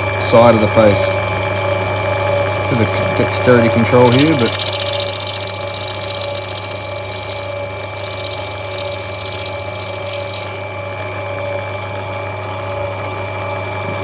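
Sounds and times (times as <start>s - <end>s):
grinding wheel motor hum: 4.0s - 10.6s
stone hissing against wheel: 4.0s - 10.6s.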